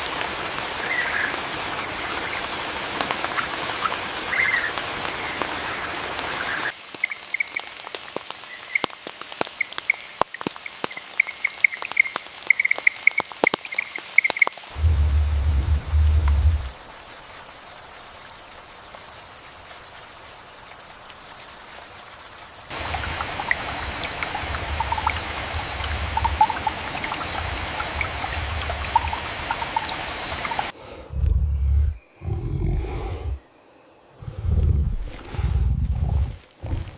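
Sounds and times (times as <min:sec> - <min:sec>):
steady rain hiss: 0:00.0 - 0:36.9
water drips: 0:06.2 - 0:31.4
low rumble: 0:14.8 - 0:16.8, 0:30.9 - 0:33.4, 0:34.2 - 0:36.9
frog chirping: 0:22.7 - 0:30.7
water drops: 0:22.7 - 0:30.8.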